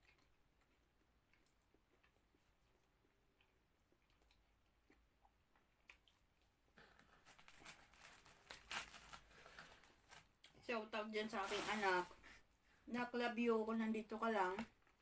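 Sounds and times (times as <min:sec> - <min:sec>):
close crackling and rustling: 0:06.8 - 0:12.4.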